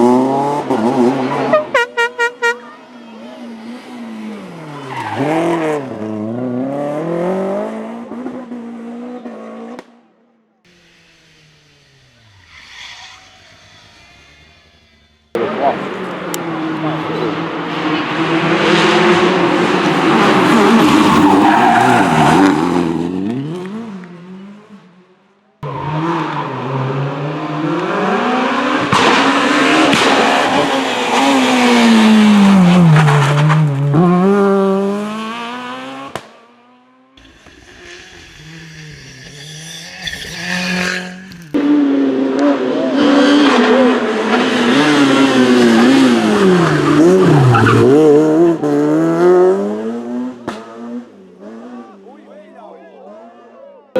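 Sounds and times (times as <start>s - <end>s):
rally car engines revving: 0.0s - 53.6s
tyre squeal: 19.5s - 22.5s, 37.2s - 41.5s.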